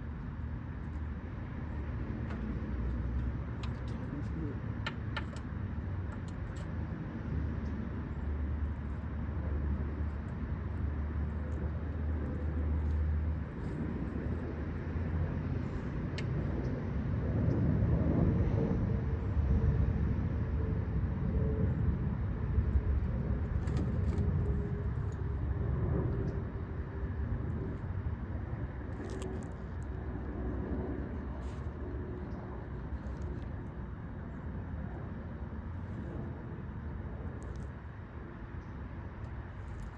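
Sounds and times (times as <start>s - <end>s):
faint vehicle engine tone: 0.0s - 16.8s
vehicles passing with low rumble: 0.0s - 39.9s.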